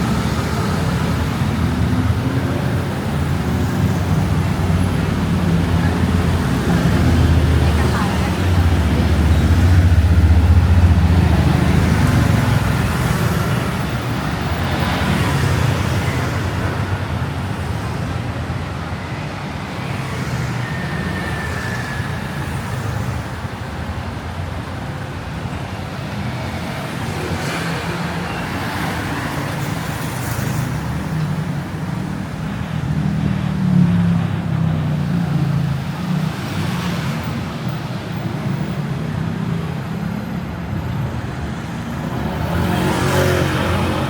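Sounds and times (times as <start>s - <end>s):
traffic rumble: 0.0s - 44.0s
vehicles passing with hiss: 0.0s - 44.0s.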